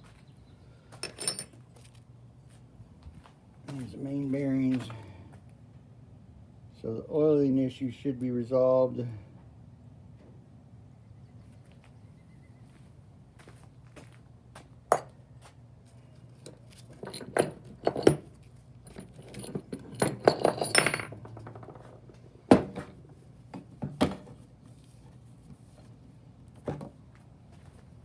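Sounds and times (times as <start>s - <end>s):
metal engine parts clinking: 1.0s - 1.6s, 16.4s - 22.2s.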